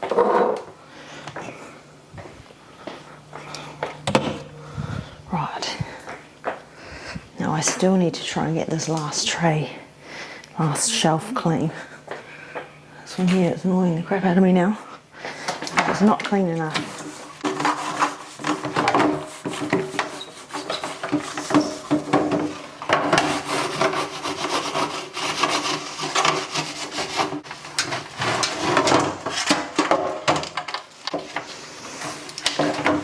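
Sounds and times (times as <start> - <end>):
scrubbing a tray by hand: 16.0 - 29.9.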